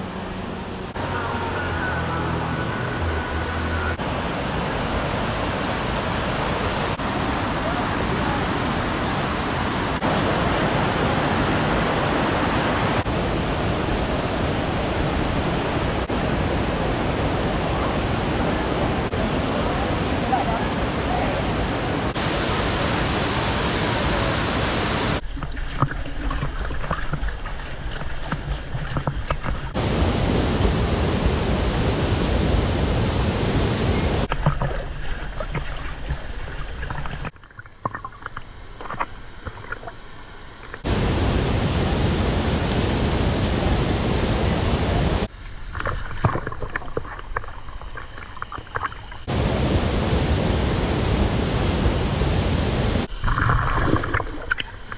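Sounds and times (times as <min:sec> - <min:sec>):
waterfall roaring: 0:00.0 - 0:25.2, 0:29.7 - 0:34.3, 0:40.8 - 0:45.3, 0:49.2 - 0:53.1
water splashes: 0:02.6 - 0:51.4, 0:52.9 - 0:54.9.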